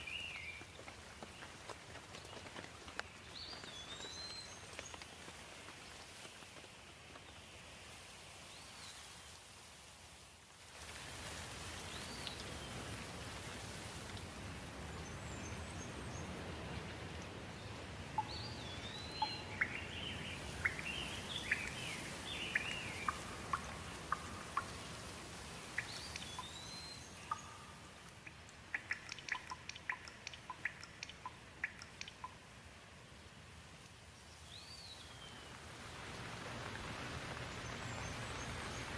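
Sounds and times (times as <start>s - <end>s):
sharp water drips: 10.8s - 32.6s
birds chirping: 14.8s - 32.4s.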